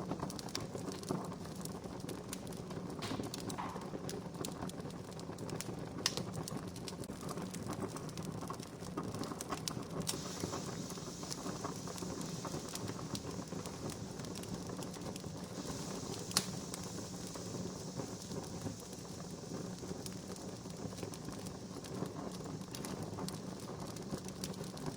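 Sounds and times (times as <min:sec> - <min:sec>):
campfire crackling: 0:00.0 - 0:24.9
loud fire pop: 0:02.9 - 0:04.4, 0:10.1 - 0:22.1.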